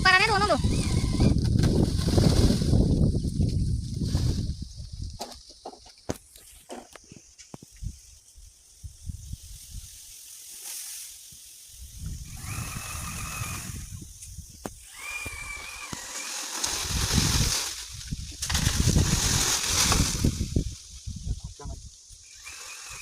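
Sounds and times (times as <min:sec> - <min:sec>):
wind buffeting microphone: 0:00.0 - 0:05.4, 0:11.8 - 0:15.8, 0:16.8 - 0:22.5.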